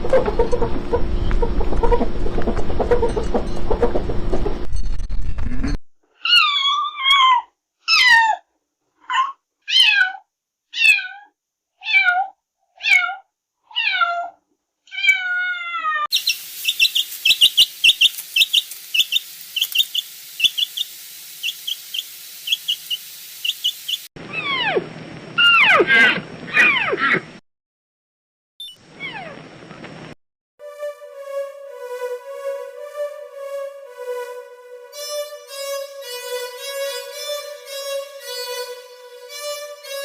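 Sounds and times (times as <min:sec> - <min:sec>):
cat meowing: 0:09.1 - 0:10.2, 0:10.8 - 0:16.0
high-pitched chirping: 0:16.1 - 0:24.1, 0:30.6 - 0:40.0
hiss: 0:16.1 - 0:24.1
overlapping falling calls: 0:16.1 - 0:24.1.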